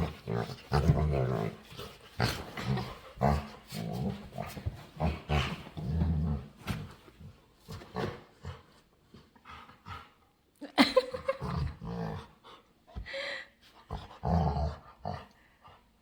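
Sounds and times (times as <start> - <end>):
dog growling playfully: 0.0 - 6.6, 11.1 - 12.6, 13.9 - 15.4.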